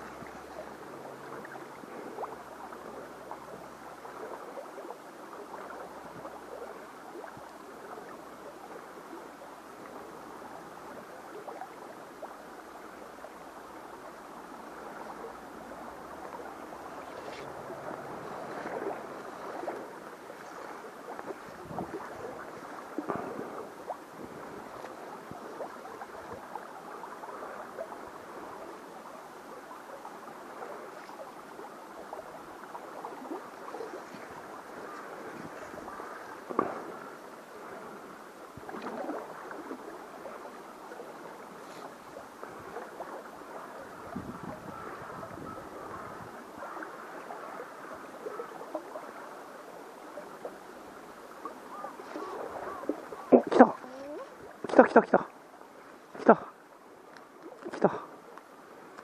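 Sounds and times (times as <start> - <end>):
stream water flowing: 0.0 - 59.0
small splashes and knocks: 16.2 - 26.5, 32.7 - 37.1, 38.6 - 40.0.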